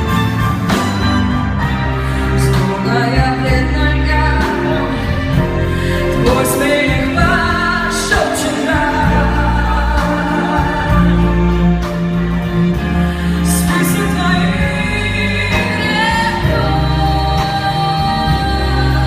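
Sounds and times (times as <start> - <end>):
instrumental accompaniment: 0.0 - 19.0
person singing with vibrato: 2.2 - 11.9.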